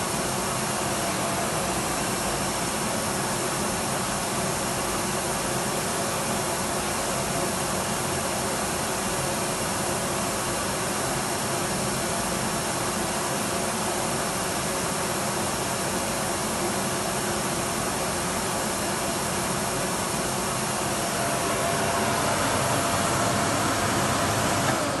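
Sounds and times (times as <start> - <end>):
faint steady whine: 16.6 - 25.0
vacuum cleaner running: 19.2 - 25.0.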